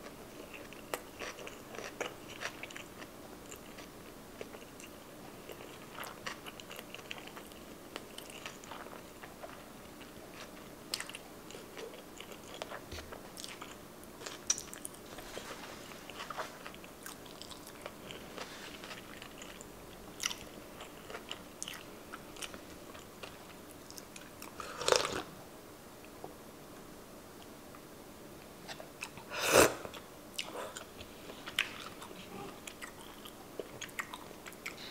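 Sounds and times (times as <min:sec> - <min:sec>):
loud sip of soup: 0:29.3 - 0:29.9.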